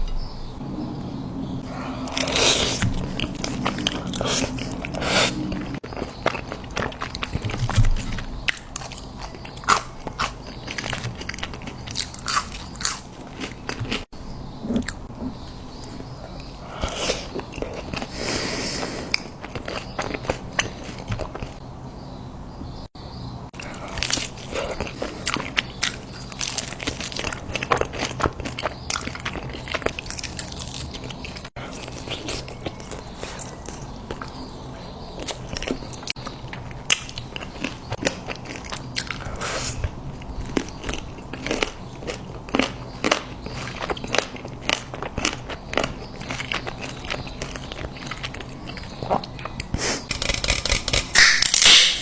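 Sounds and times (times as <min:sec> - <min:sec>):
person chewing crunchy food: 0:01.4 - 0:21.6, 0:23.5 - 0:52.0.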